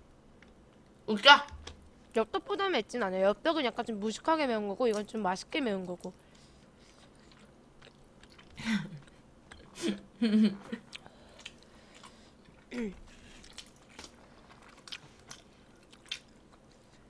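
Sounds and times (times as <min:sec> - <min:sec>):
person chewing with wet clicks: 0:04.8 - 0:09.8, 0:10.8 - 0:17.0.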